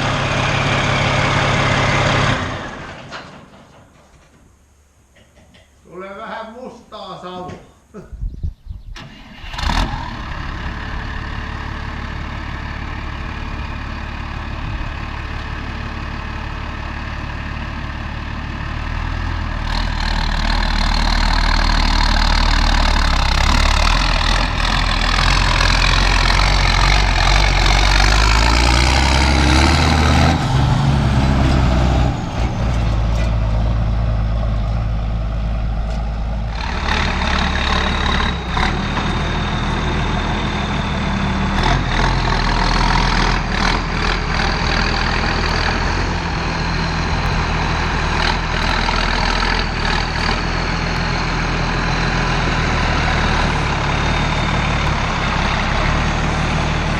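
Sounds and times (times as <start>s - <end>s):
tractor diesel engine running: 0.0s - 4.0s, 9.0s - 56.9s.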